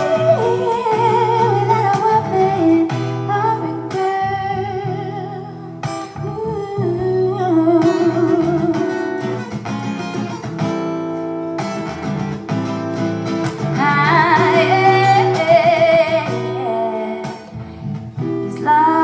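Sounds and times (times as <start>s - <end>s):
person singing: 0.0s - 9.4s, 13.5s - 17.9s
acoustic guitar: 0.0s - 19.0s.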